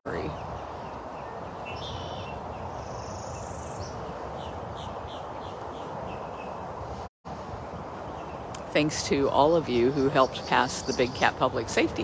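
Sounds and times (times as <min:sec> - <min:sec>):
outdoor background noise: 0:00.0 - 0:12.0
bird trill: 0:00.9 - 0:06.6.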